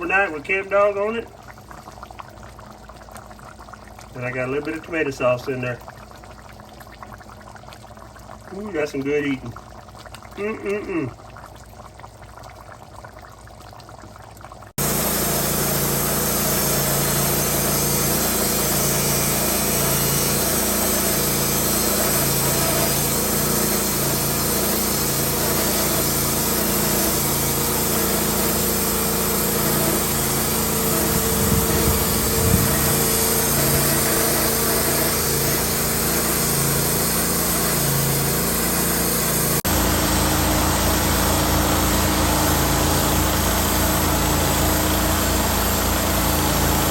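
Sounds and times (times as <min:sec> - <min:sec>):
sawmill running: 0:14.8 - 0:46.9
pulsing low hum: 0:29.6 - 0:36.8.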